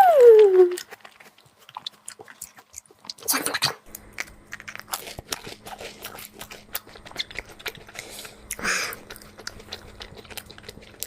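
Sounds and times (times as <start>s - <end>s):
faint steady hum: 0.0s - 11.0s
person chewing: 0.5s - 11.0s.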